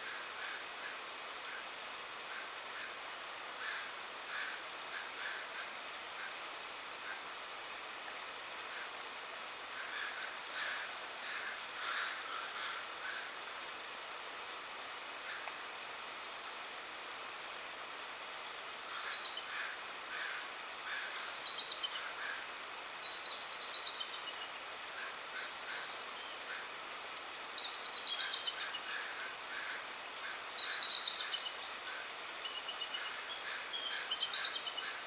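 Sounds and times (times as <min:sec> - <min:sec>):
songbird singing: 0:27.5 - 0:28.9, 0:30.3 - 0:35.0.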